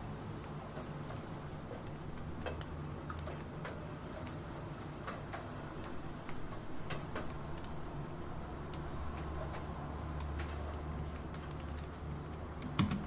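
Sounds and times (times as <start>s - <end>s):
rain: 0.0s - 13.0s
computer keyboard key clicks: 11.2s - 13.0s.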